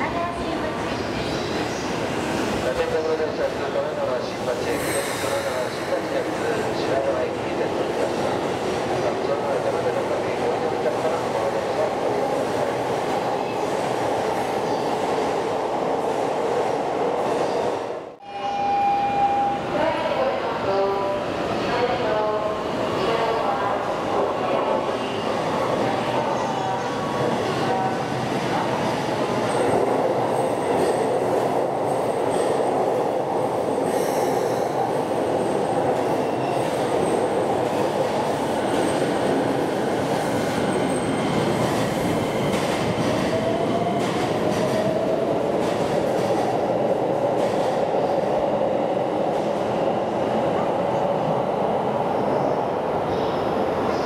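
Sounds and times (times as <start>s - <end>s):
trains rumbling: 0.0s - 54.0s.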